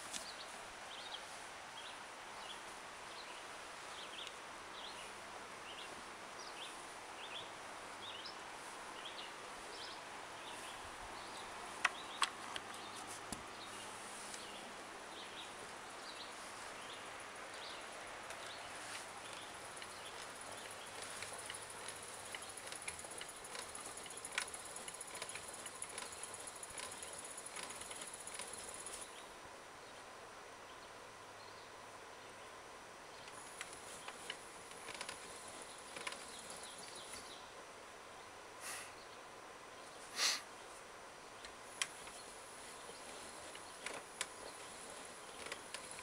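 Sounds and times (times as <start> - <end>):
steady background hiss: 0.0 - 46.0
sharp clicks: 19.8 - 29.0.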